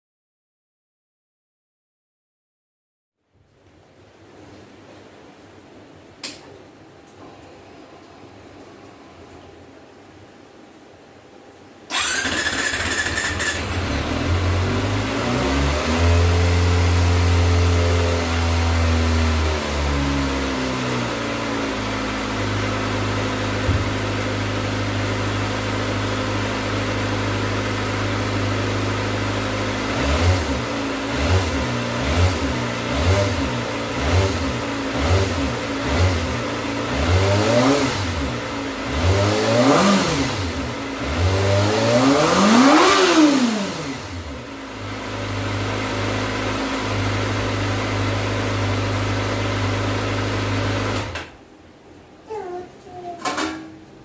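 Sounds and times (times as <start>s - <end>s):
motorcycle engine revving: 11.9s - 51.3s.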